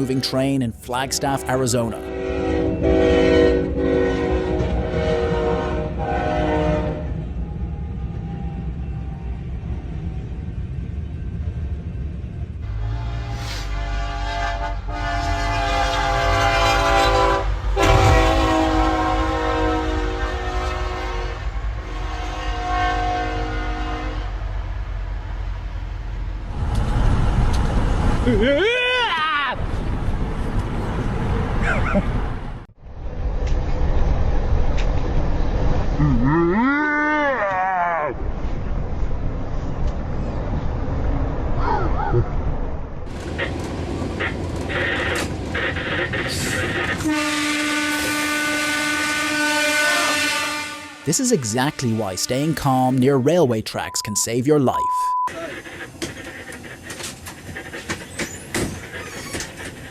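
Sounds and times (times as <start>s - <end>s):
locomotive horn chord: 1.3s - 7.1s, 12.7s - 24.4s, 47.0s - 52.2s
train rumble: 42.3s - 48.6s, 55.3s - 59.9s.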